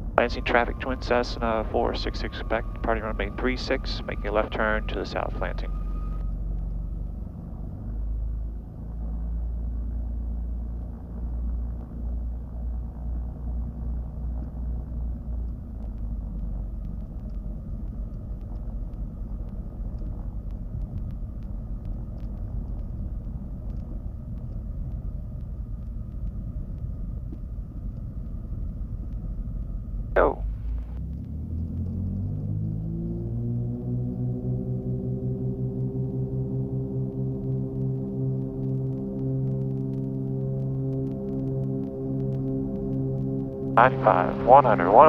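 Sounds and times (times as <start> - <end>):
airplane piston engines rumbling: 0.0 - 45.0
faint clicks: 10.7 - 29.8.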